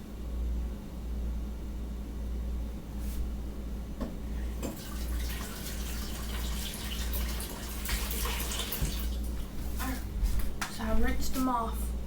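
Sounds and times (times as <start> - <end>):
tap water running and splashing: 4.6 - 9.4.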